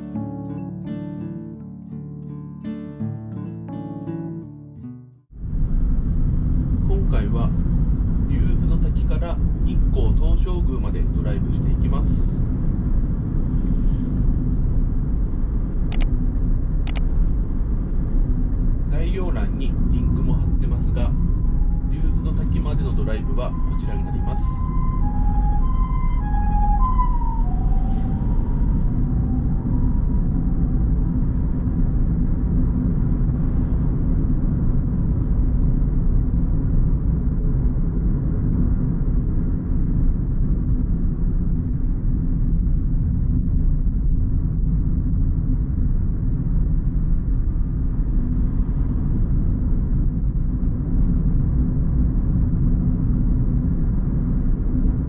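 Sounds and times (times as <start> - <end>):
car road and engine rumble: 5.4 - 55.0
two-tone siren: 20.8 - 31.3.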